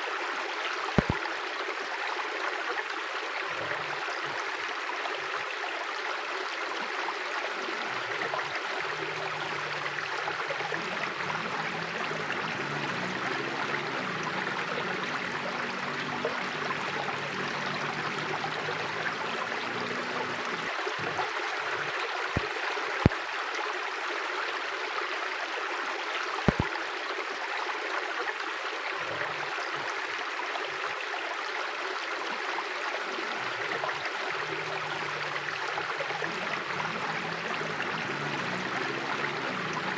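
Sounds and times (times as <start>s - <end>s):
river rushing over rocks: 7.6s - 22.5s, 33.0s - 39.9s.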